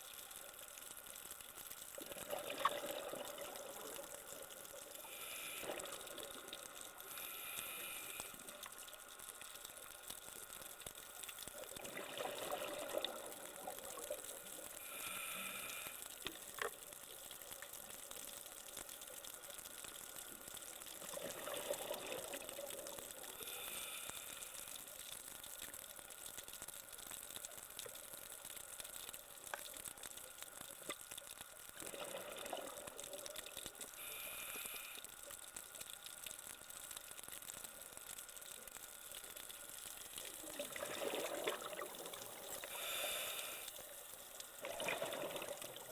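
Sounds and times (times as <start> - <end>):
exhaled bubbles gurgling: 2.0 - 8.6, 11.4 - 16.8, 20.4 - 24.1, 31.7 - 34.2, 40.0 - 45.9
regulator breaths underwater: 4.9 - 8.7, 14.5 - 16.5, 21.2 - 24.9, 33.9 - 35.2, 40.6 - 45.9.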